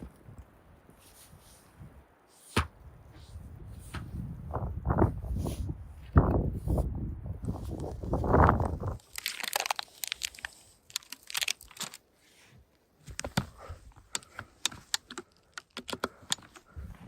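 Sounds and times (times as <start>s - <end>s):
sharp clicks and crunches: 8.7s - 12.0s, 13.0s - 17.0s.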